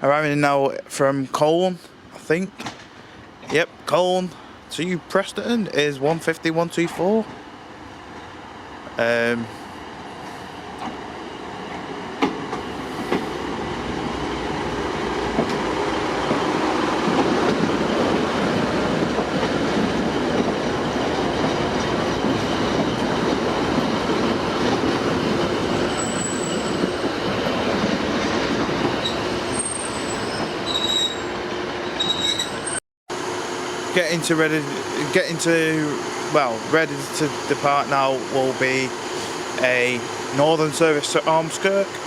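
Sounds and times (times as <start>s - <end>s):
diesel train engine: 1.8s - 42.0s
train wheels squealing: 25.7s - 27.2s, 28.9s - 32.8s.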